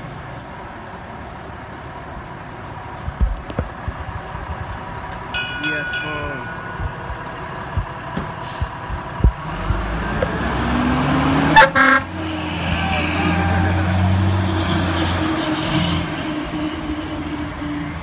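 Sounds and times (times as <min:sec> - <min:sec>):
fire engine accelerating: 0:06.6 - 0:18.0
horn blasts: 0:11.5 - 0:16.1.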